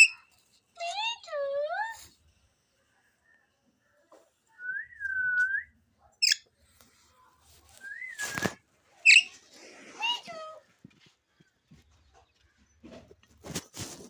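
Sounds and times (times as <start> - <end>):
whistled notes: 7.8 - 9.3
parrot squawks: 9.0 - 9.4.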